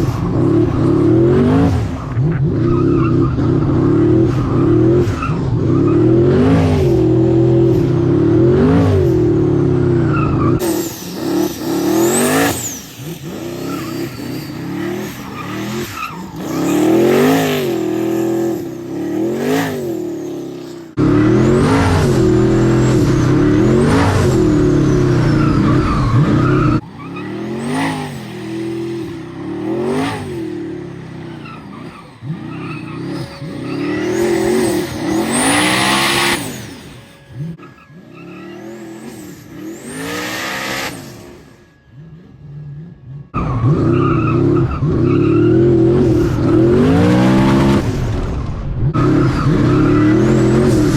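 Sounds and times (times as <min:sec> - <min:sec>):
race car engine revving: 0:00.0 - 0:50.9
tyre squeal: 0:09.9 - 0:42.1, 0:43.4 - 0:48.1, 0:49.0 - 0:50.9.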